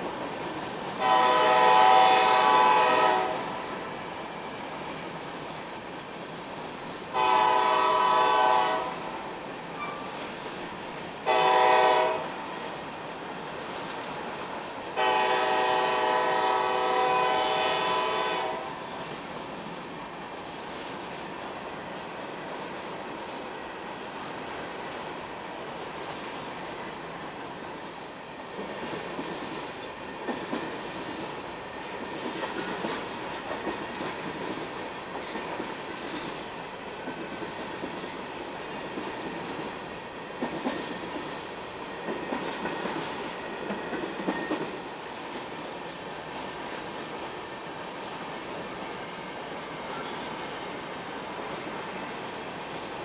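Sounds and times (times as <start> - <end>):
train wheels clicking over rail joints: 26.9 - 53.0.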